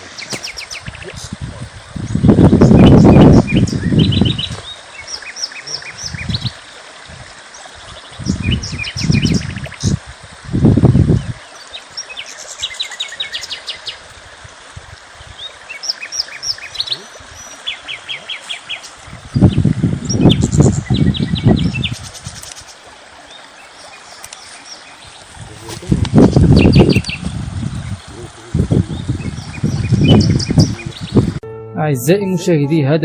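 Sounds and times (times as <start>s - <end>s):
songbirds chirping and singing: 0.0s - 6.7s, 7.5s - 10.0s, 15.2s - 31.4s.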